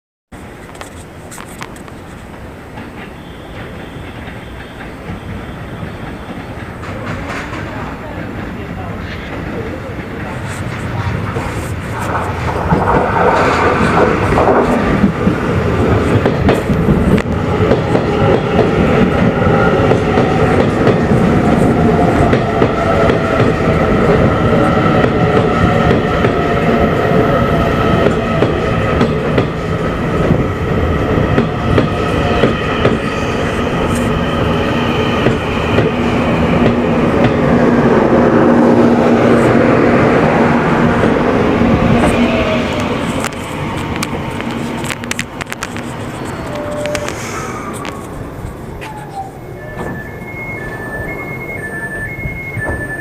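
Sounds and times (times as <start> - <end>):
steady train whine: 0.4 - 53.0
train wheels clacking over rail joints: 0.7 - 19.2.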